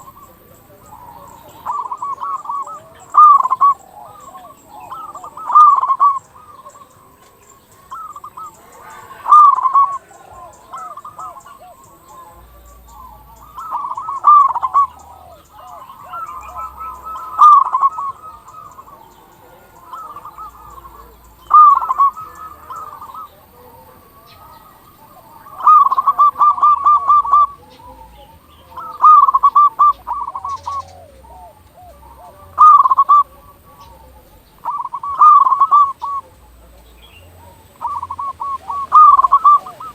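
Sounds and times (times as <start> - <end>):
dove stuttering coos: 0.0 - 39.9.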